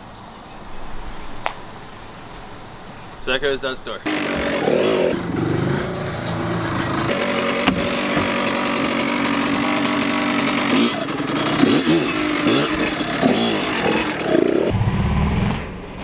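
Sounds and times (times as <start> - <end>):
vehicle engine revving: 4.0 - 14.7.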